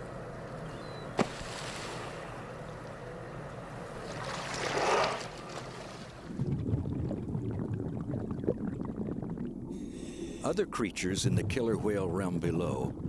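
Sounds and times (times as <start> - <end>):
low crackling water rumble: 0.0 - 13.0
underwater rush of water: 4.0 - 13.0.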